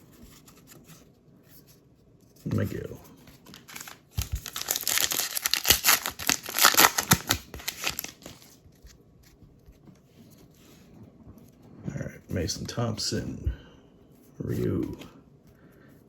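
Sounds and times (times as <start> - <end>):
wrapper tearing and crinkling: 3.5 - 8.6.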